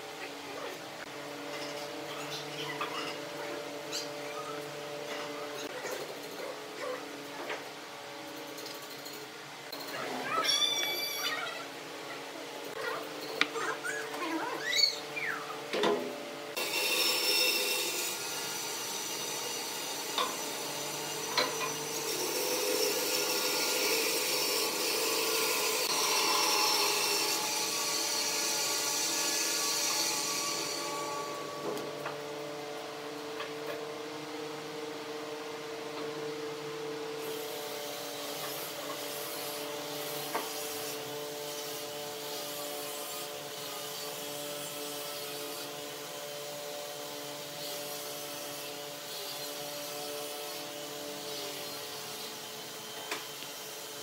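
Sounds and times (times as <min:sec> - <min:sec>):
tool scraping spinning wood: 0:15.8 - 0:32.2
wood lathe motor hum: 0:16.5 - 0:33.7.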